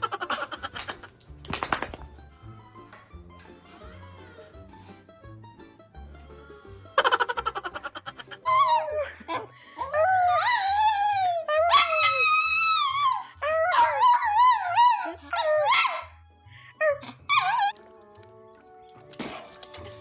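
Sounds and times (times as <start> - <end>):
background music with bass line: 0.0 - 8.4.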